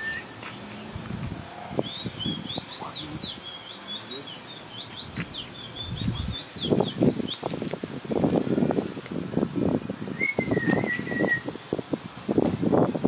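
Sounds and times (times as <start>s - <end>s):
songbird chirping: 1.8s - 7.6s.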